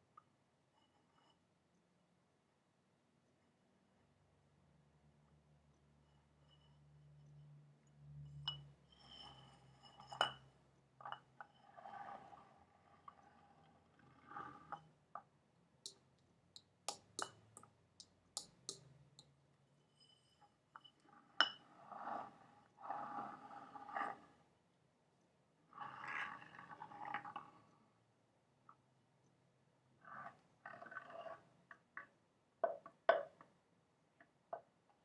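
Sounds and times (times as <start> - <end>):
fingernail tapping hard object: 15.9 - 19.3, 32.0 - 33.5.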